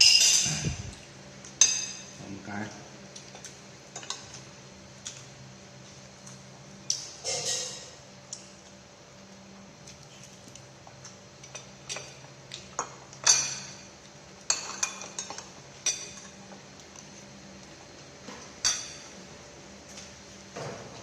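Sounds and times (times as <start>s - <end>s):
utensils clinking against dishes: 0.0s - 2.3s, 3.2s - 4.4s, 6.9s - 8.5s, 11.4s - 13.9s, 14.5s - 16.6s, 18.3s - 19.2s.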